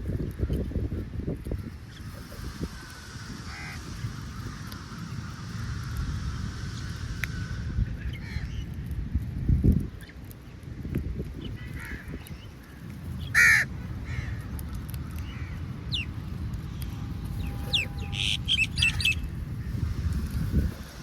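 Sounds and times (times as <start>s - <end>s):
steady low rumble: 0.0s - 21.0s
crow cawing: 3.4s - 4.0s, 11.6s - 14.5s
high-pitched bird calls: 16.8s - 19.4s.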